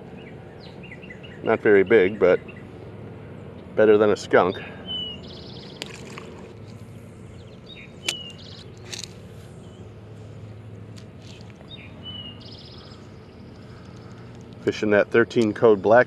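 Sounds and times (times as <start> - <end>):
birds chirping with trills: 0.0 - 16.0
outdoor background noise: 0.0 - 16.0.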